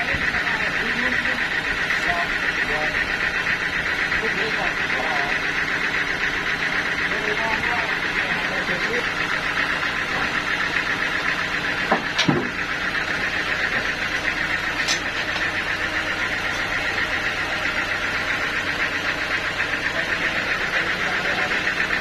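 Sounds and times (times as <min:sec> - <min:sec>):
sawmill machinery pulsing hum: 0:00.0 - 0:22.0
sharp knocks: 0:11.8 - 0:12.6.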